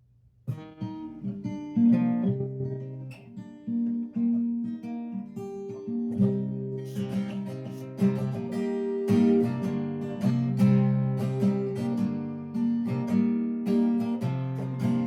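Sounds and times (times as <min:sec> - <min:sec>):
acoustic guitar chords: 0:00.5 - 0:15.0.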